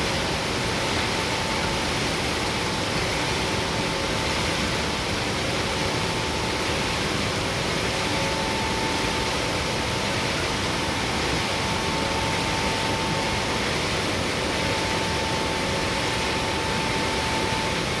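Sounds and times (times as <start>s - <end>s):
faint steady whine: 0.0s - 18.0s
mill machinery running: 0.0s - 18.0s.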